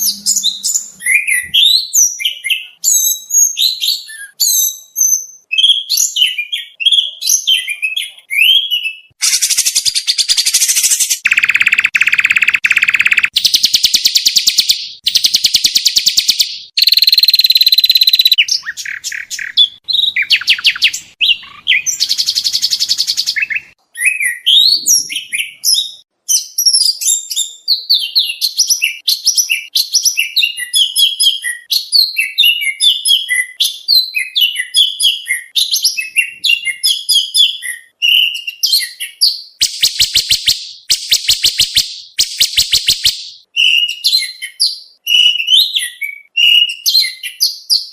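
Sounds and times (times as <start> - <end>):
bird chirps and whistles: 0.0 - 47.9
buzzy rattling bird trills: 9.2 - 19.6.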